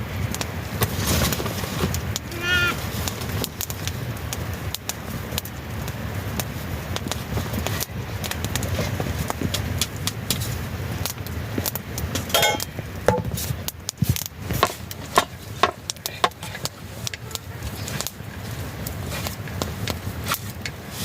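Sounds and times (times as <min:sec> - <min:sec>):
low background noise: 0:00.0 - 0:21.0
kitchen utensils clinking: 0:12.2 - 0:13.3.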